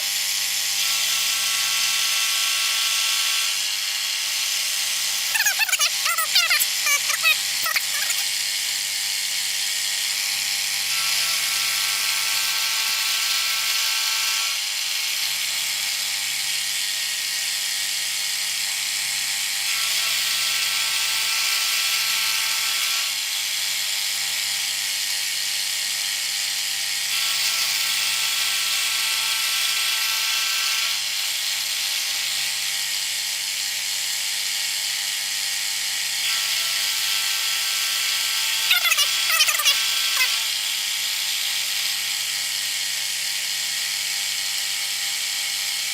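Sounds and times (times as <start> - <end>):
milling cutter cutting steel: 0.0 - 45.9
milling machine running: 0.0 - 45.9.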